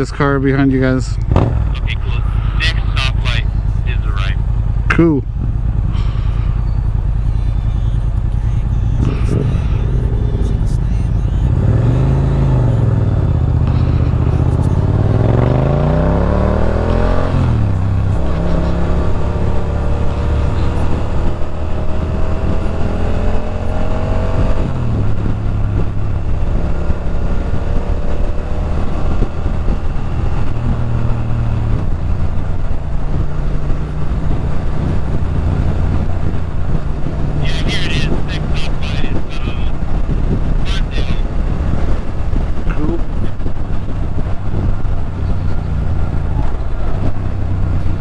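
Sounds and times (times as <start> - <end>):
motorcycle engine accelerating: 0.0 - 48.0
wind rush: 29.0 - 48.0.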